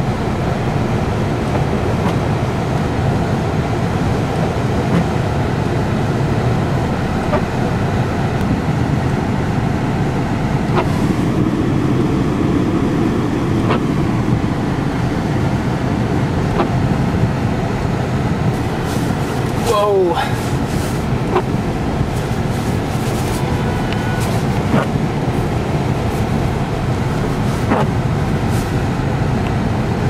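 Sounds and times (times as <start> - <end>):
car engine and tyre noise: 0.0 - 30.0.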